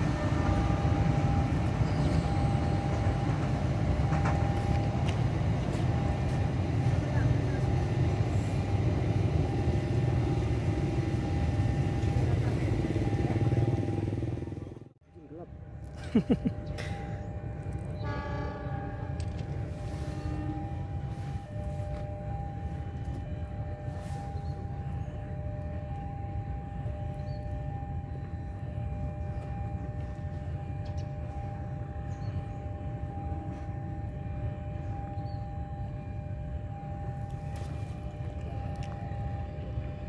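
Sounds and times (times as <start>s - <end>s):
distant train rumble: 0.0s - 40.0s
steady whining tones: 0.0s - 40.0s.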